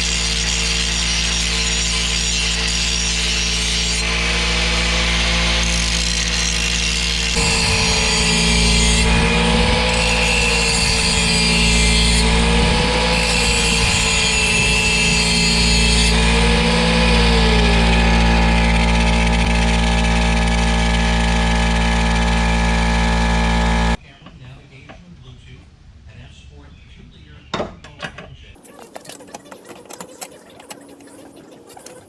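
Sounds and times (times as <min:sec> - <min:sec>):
motor running: 0:00.0 - 0:24.0, 0:28.6 - 0:32.0.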